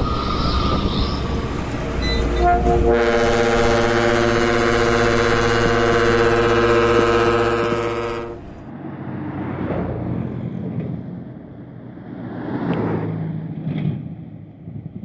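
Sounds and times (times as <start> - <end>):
low engine drone: 0.0 - 11.7
vehicles passing uphill: 0.0 - 15.0.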